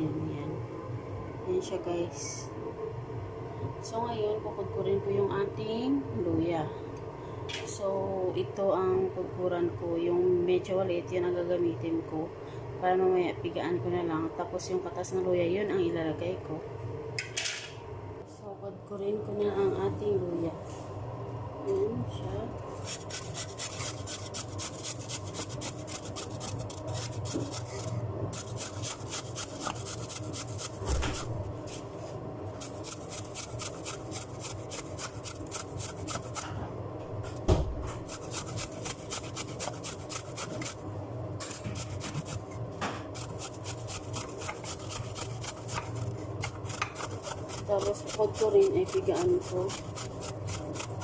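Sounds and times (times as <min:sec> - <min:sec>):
ginger rasping on grater: 0:22.8 - 0:31.8, 0:32.6 - 0:36.5, 0:38.0 - 0:40.8, 0:41.4 - 0:42.5, 0:43.1 - 0:51.0.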